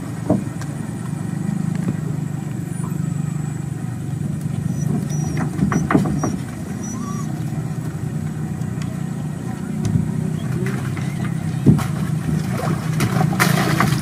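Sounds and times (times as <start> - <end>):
boat engine droning: 0.0 - 14.0
sharp knocks: 4.9 - 6.6.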